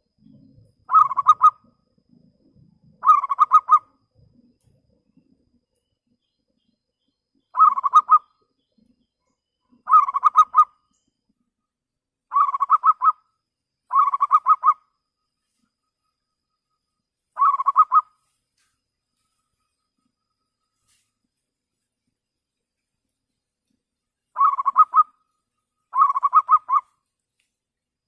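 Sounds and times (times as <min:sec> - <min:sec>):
dove cooing staccato notes: 0:00.9 - 0:01.7, 0:03.0 - 0:03.9, 0:07.6 - 0:08.3, 0:09.7 - 0:10.7, 0:12.3 - 0:13.2, 0:13.9 - 0:14.8, 0:17.4 - 0:18.1, 0:24.4 - 0:25.1, 0:25.9 - 0:26.9.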